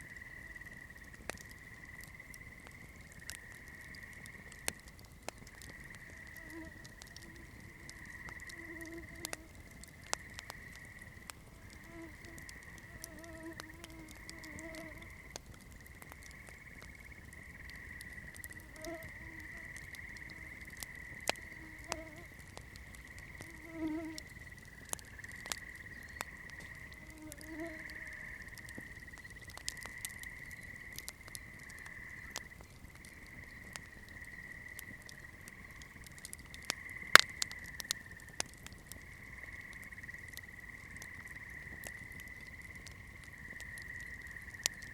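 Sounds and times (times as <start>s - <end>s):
campfire crackling and popping: 0.0s - 44.9s.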